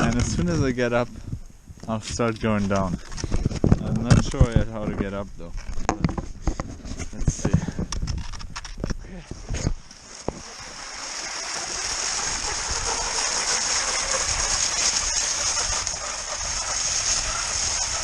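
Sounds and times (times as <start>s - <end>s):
skis hissing over snow: 9.4s - 18.0s.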